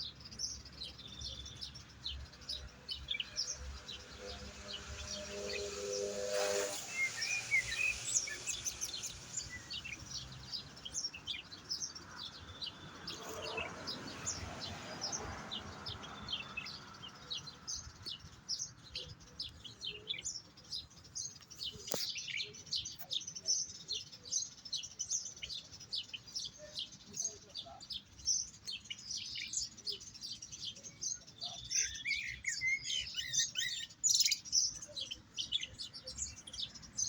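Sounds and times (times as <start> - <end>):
goldfinch twittering song: 0.0 - 37.0.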